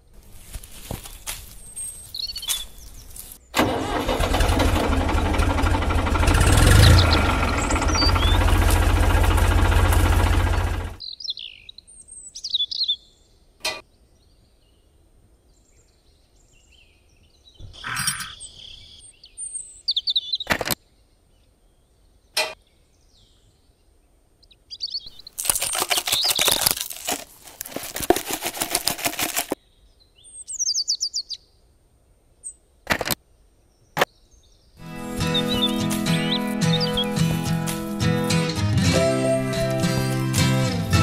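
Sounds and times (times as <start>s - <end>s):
small birds chirping: 0.0s - 3.6s, 6.2s - 13.4s, 15.5s - 31.6s, 32.4s - 40.8s
seeds poured into plastic hopper: 25.2s - 29.6s.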